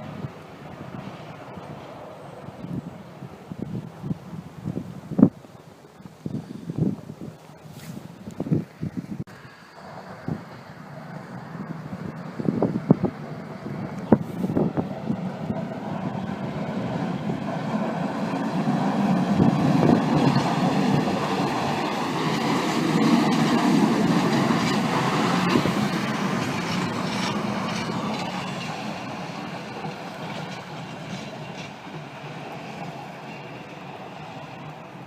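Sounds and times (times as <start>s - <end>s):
large vehicle rumbling by: 9.3s - 35.0s.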